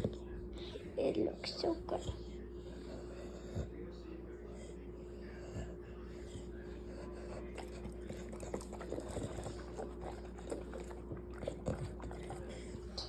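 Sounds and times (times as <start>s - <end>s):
puppy licking and smacking mouth: 7.5s - 13.0s.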